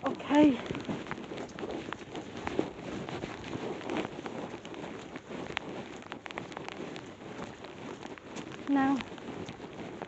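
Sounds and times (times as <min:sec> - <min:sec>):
steady rain: 0:00.0 - 0:04.7, 0:05.4 - 0:09.8
raindrops tapping near microphone: 0:00.0 - 0:10.0.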